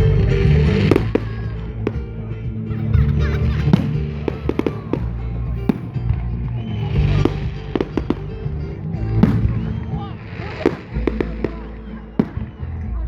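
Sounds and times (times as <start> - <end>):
fireworks bangs and crackles: 0.0 - 2.6, 3.2 - 12.9
music playing: 0.0 - 13.0.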